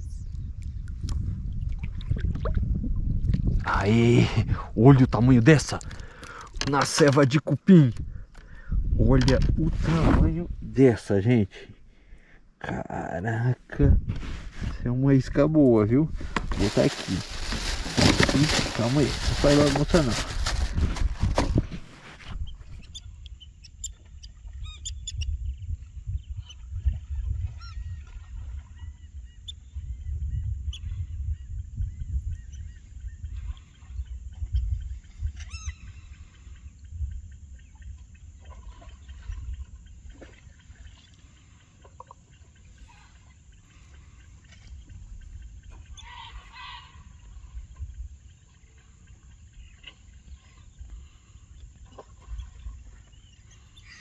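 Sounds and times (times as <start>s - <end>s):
wild birds calling: 30.3s - 54.0s.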